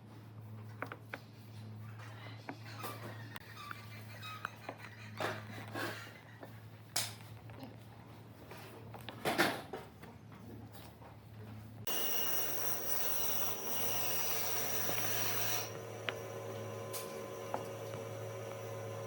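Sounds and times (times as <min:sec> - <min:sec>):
electric power tool whining: 0:11.9 - 0:19.0.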